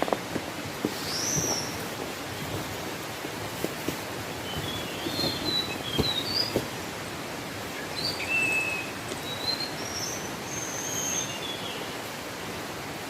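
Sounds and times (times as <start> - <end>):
small birds chirping and whistling: 1.0 - 1.8, 4.4 - 6.6, 7.8 - 11.9.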